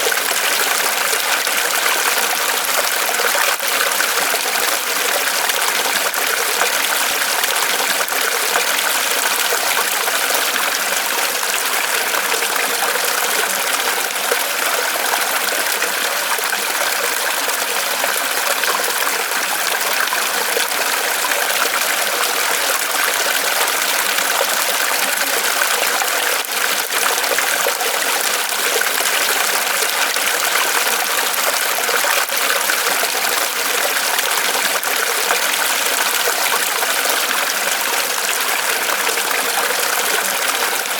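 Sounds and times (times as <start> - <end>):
small waterfall splashing: 0.0 - 40.9.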